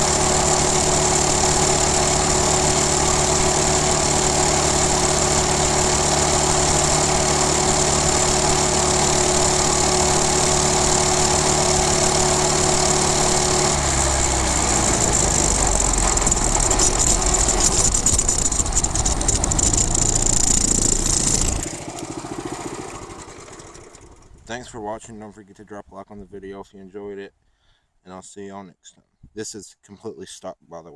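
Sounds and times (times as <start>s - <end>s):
small motorbike engine running: 0.0s - 24.5s.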